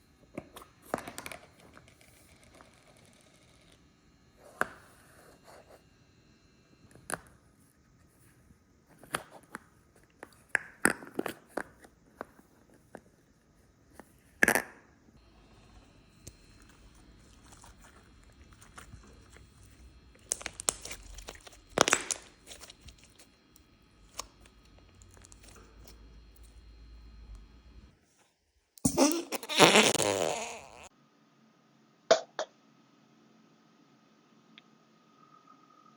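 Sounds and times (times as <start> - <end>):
putty crackling and popping: 16.2 - 23.3.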